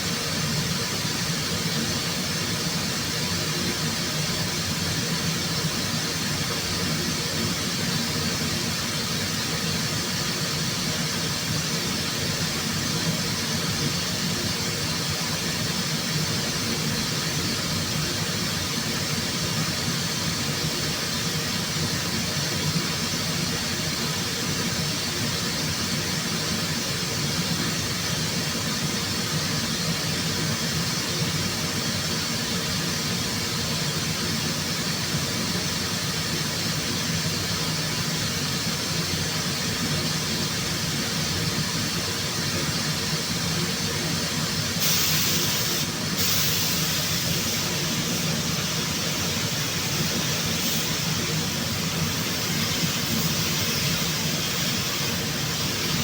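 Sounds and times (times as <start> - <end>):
steady machine noise: 0.0 - 56.0
compressed air hiss: 37.7 - 56.0.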